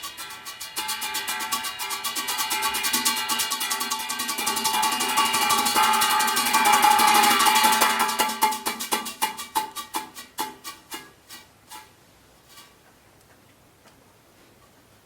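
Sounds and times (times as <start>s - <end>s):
plucked zither instrumental music: 0.0s - 8.2s
percussion: 0.0s - 12.9s.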